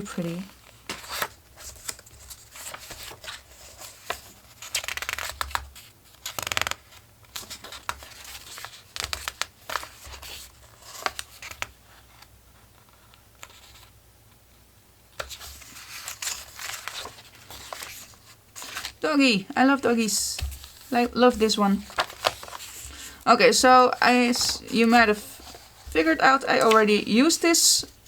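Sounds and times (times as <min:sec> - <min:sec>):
paper pages rustling: 0:00.0 - 0:13.9, 0:15.2 - 0:19.0, 0:19.7 - 0:28.0.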